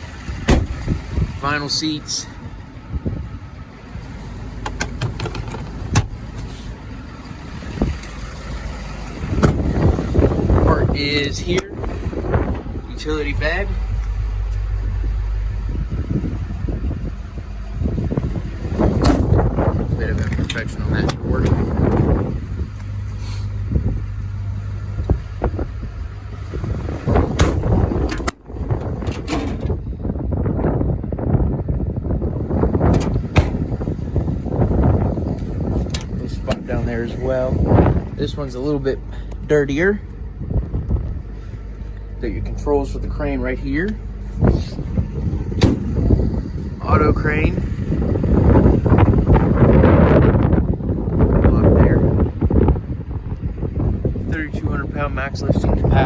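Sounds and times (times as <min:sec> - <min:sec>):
diesel truck engine idling: 0:00.0 - 0:56.0
low vehicle rumble: 0:00.0 - 0:56.0
wind buffeting microphone: 0:00.0 - 0:56.0
sharp clicks and knocks: 0:04.6 - 0:06.2.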